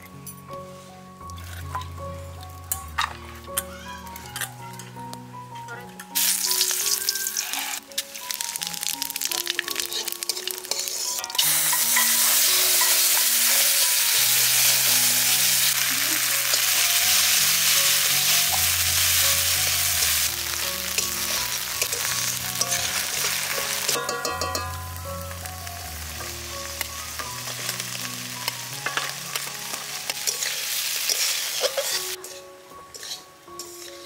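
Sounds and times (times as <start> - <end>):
crackling oil: 6.1 - 12.1
loud sizzle of paste in oil: 6.2 - 24.0, 24.9 - 34.0.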